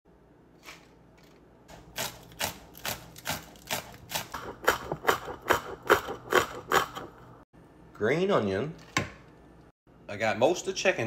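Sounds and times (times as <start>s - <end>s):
knife chopping on cutting board: 1.7s - 7.1s.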